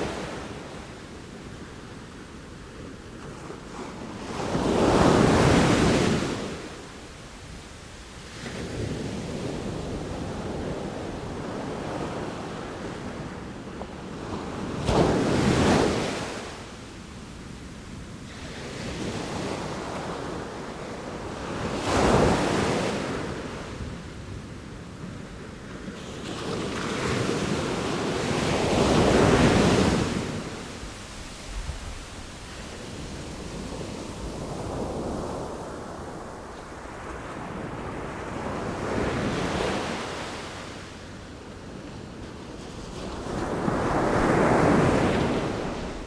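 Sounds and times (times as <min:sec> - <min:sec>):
waves crashing: 0:26.7 - 0:40.7.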